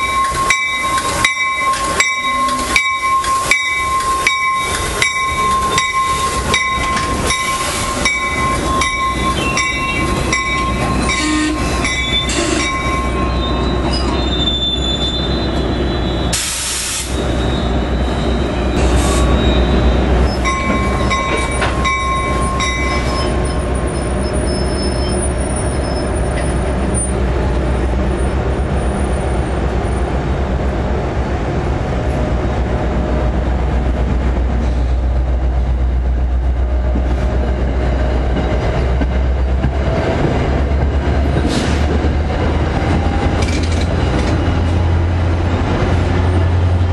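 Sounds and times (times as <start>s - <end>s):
train rumble: 0.0s - 46.9s
high wheel squeal: 7.6s - 27.1s.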